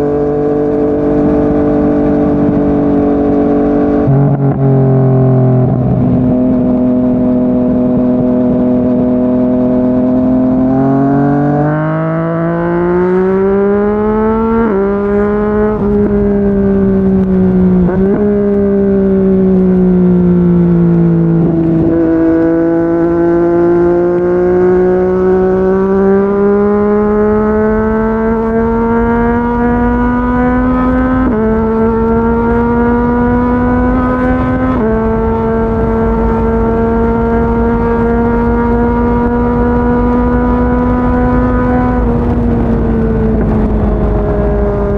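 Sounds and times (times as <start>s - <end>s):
motorcycle engine revving: 0.0s - 44.9s
wind rushing: 21.0s - 44.9s.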